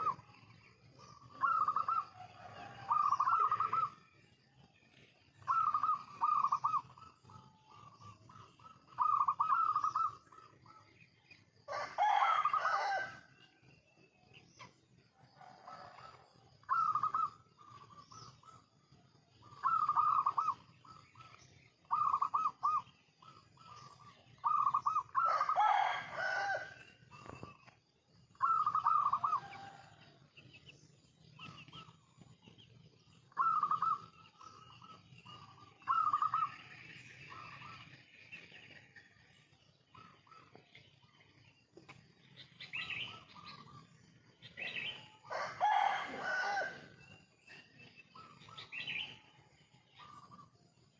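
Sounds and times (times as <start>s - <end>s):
doves cooing: 0.0s - 0.3s, 1.0s - 4.1s, 5.4s - 10.8s, 11.7s - 13.2s, 15.4s - 18.8s, 19.4s - 29.9s, 33.3s - 37.8s, 44.5s - 47.0s.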